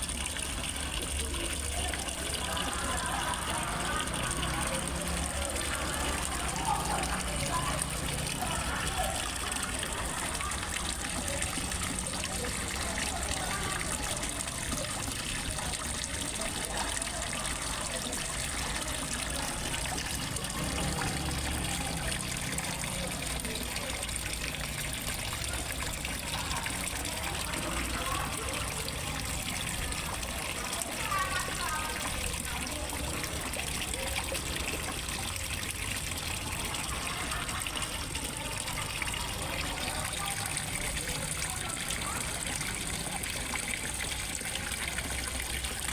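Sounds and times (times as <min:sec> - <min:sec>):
water splashing into pond: 0:00.0 - 0:45.9.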